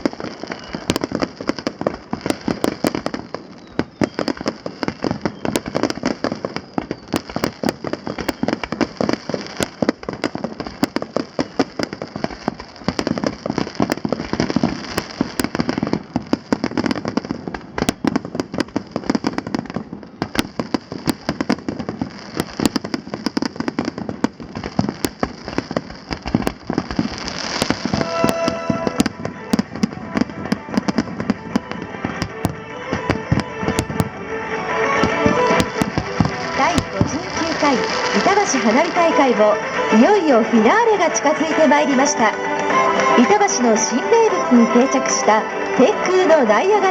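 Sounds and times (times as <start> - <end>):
fireworks bangs and crackling: 0.0 - 46.9
music with held notes: 27.9 - 46.9.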